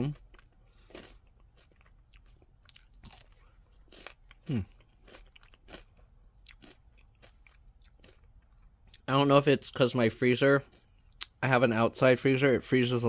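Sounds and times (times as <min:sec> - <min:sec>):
person chewing ice cream cone: 0:00.0 - 0:09.1.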